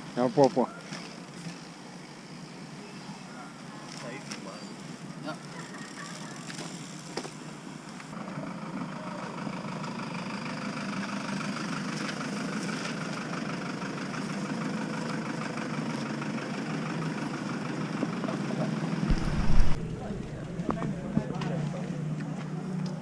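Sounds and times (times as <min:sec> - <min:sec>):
motor engine running: 0:08.2 - 0:22.7.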